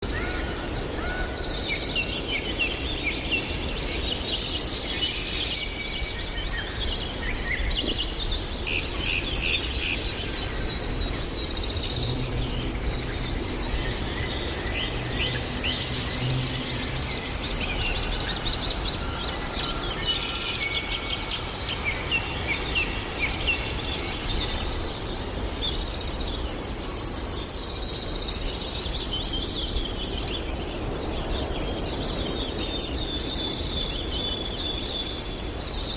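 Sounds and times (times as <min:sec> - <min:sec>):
songbirds singing and chirping: 0:00.0 - 0:35.9.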